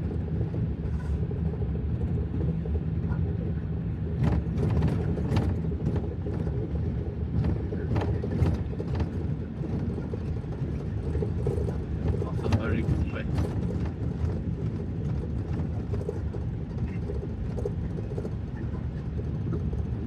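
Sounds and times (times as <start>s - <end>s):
truck engine rumble from cab: 0.0s - 20.0s.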